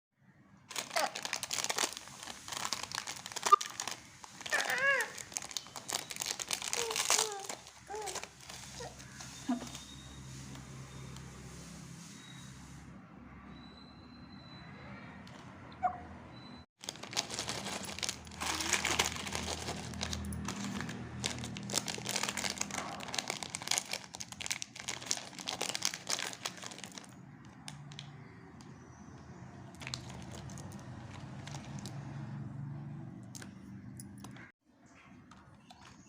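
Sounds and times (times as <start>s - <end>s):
wrappers crinkling: 0.7s - 10.2s, 16.8s - 28.1s, 29.8s - 32.0s.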